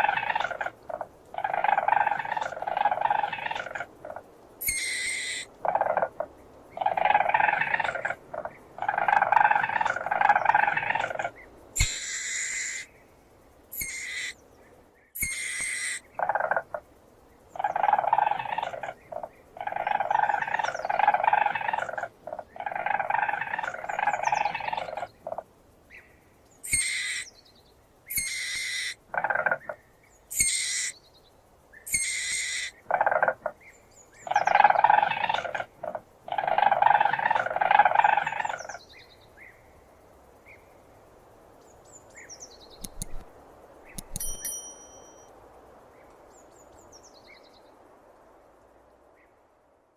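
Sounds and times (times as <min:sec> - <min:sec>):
weasel chattering trills: 0:00.0 - 0:06.1, 0:06.8 - 0:12.9, 0:13.7 - 0:14.4, 0:15.2 - 0:16.6, 0:28.1 - 0:29.0, 0:42.8 - 0:43.3, 0:43.9 - 0:45.1
weasel high-pitched squeaks: 0:04.6 - 0:05.5, 0:11.8 - 0:12.8, 0:13.7 - 0:14.3, 0:15.2 - 0:16.0, 0:26.7 - 0:27.2, 0:28.1 - 0:28.9, 0:30.3 - 0:30.9, 0:31.9 - 0:32.7.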